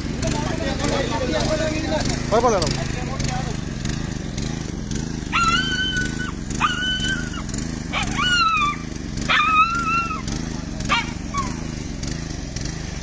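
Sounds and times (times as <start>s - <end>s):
dog whining: 5.3s - 10.3s, 10.9s - 11.6s.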